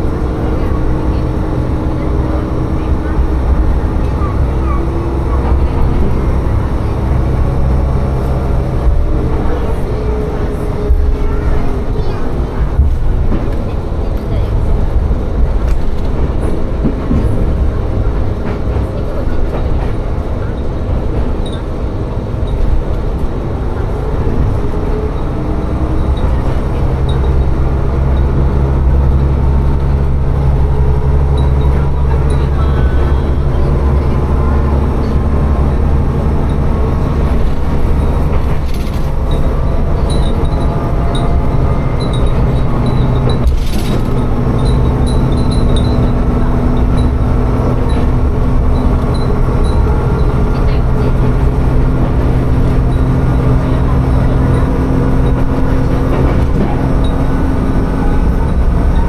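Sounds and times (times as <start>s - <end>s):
diesel railcar engine drone: 0.0s - 59.0s
rail noise: 0.0s - 59.0s.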